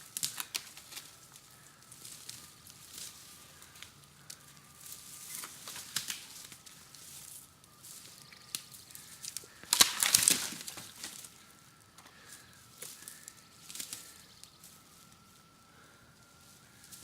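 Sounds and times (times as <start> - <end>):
branches cracking and rustling: 0.0 - 17.0
sharp wood snaps: 0.2 - 1.1, 5.4 - 6.7, 8.5 - 11.3.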